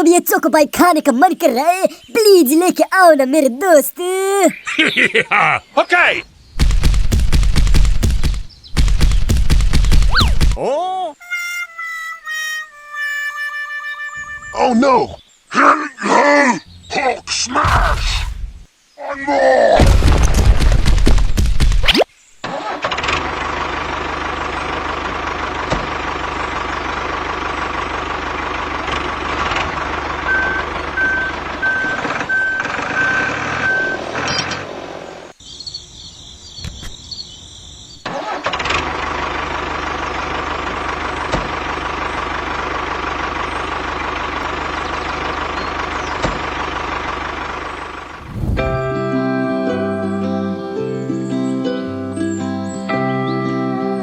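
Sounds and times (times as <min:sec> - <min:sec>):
tractor engine running: 0:06.6 - 0:10.6, 0:22.5 - 0:35.2, 0:38.0 - 0:49.2.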